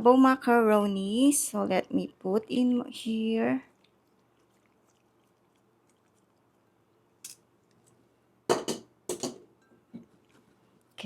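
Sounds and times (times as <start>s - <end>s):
kitchenware clattering: 8.5s - 9.8s.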